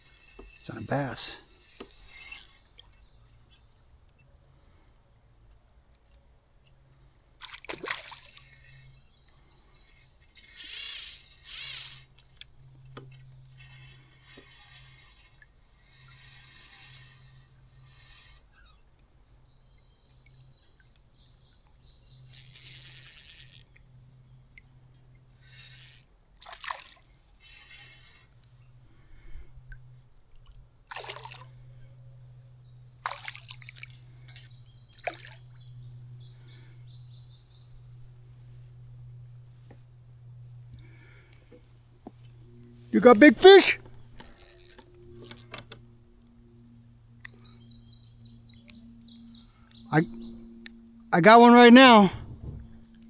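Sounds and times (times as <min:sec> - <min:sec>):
crickets chirring: 0:00.0 - 0:53.0
water splashes and drips: 0:07.4 - 0:08.4, 0:26.4 - 0:27.1, 0:30.9 - 0:31.6, 0:33.0 - 0:35.5.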